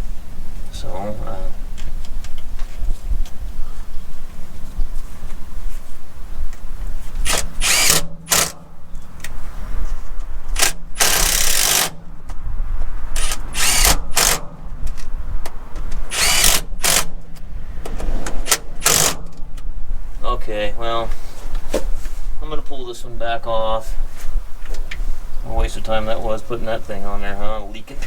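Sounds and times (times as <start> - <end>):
power tool bursts: 7.2 - 8.7, 10.5 - 12.0, 13.2 - 14.5, 16.1 - 17.2, 18.4 - 19.4.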